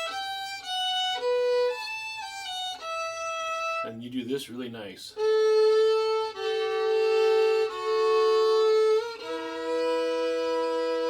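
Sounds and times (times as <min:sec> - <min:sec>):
fiddle playing double stops: 0:00.0 - 0:03.9, 0:05.2 - 0:11.0.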